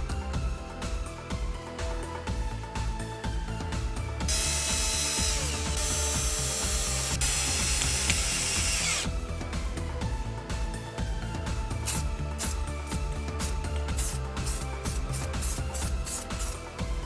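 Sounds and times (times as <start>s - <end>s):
background music with a beat: 0.0s - 17.0s
cordless drill motor running: 4.3s - 9.1s.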